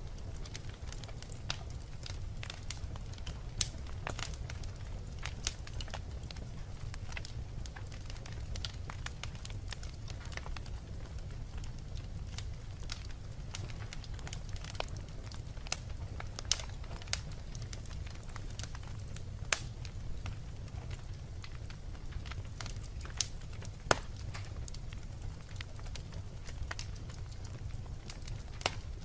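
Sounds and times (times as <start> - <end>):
low rumble of flames: 0.0 - 29.0
wood fire crackling: 0.0 - 29.0.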